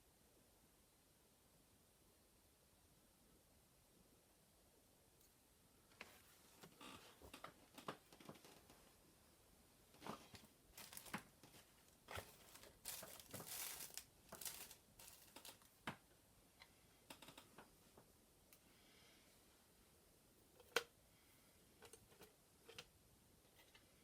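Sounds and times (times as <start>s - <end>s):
crinkly rustles: 6.0s - 9.0s, 9.9s - 15.8s.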